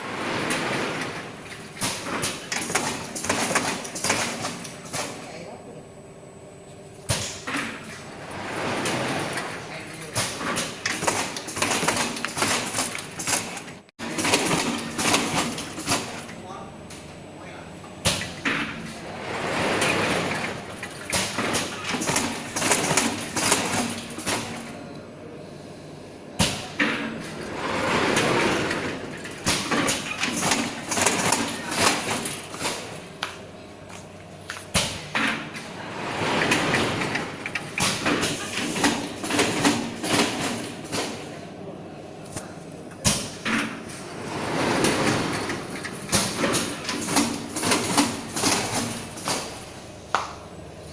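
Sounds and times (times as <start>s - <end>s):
printing machine knocking and scraping: 0.0s - 5.2s, 7.1s - 16.3s, 18.1s - 24.7s, 26.4s - 33.1s, 34.7s - 41.4s, 43.1s - 49.6s
sliding and scraping: 7.9s - 9.9s, 35.8s - 37.6s.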